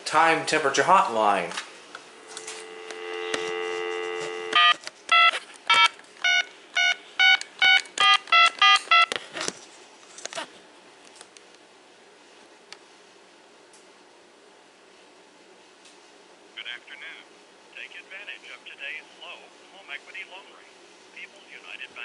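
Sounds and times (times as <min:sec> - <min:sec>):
telephone dial tone: 0:02.2 - 0:09.2.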